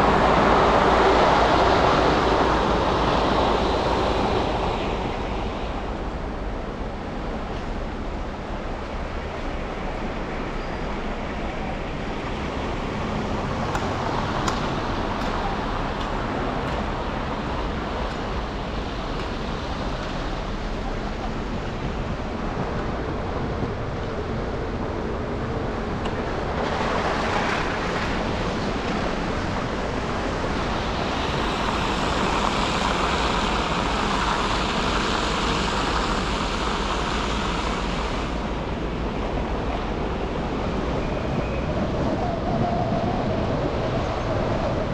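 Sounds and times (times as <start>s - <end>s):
car tyres on wet road hissing: 26.7s - 38.6s.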